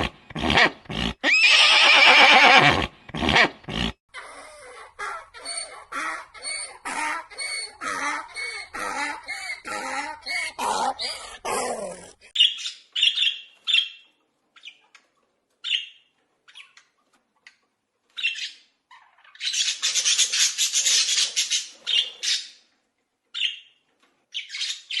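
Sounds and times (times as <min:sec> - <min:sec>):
animal high-pitched calls: 0:05.0 - 0:12.1.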